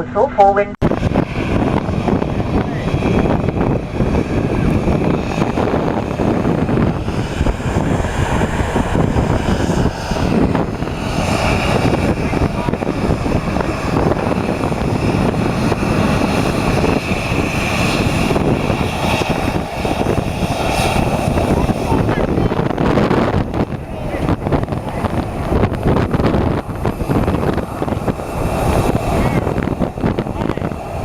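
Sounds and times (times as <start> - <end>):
high engine whine: 0.0 - 31.0
jet engine cabin rumble: 0.0 - 31.0.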